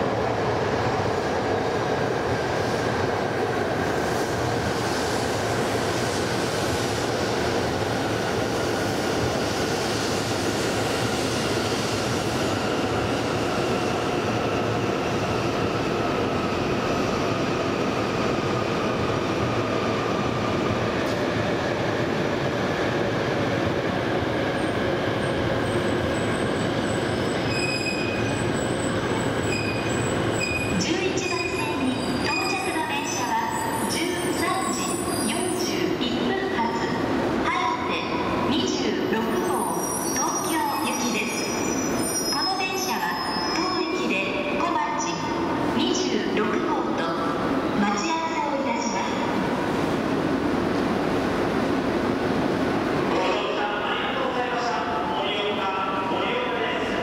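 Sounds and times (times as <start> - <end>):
train wheels rumbling on rail: 0.0 - 38.6
high-pitched brake squeals: 26.2 - 35.6, 39.4 - 40.5, 41.2 - 43.7.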